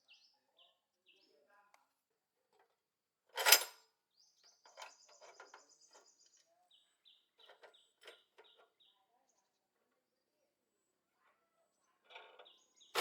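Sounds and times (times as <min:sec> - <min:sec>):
small birds chirping: 0:04.1 - 0:10.5, 0:11.2 - 0:13.0.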